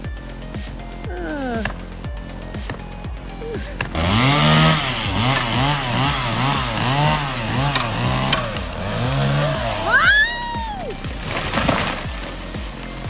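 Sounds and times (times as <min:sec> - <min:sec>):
chainsaw cutting wood: 0:03.7 - 0:10.2, 0:11.0 - 0:13.0.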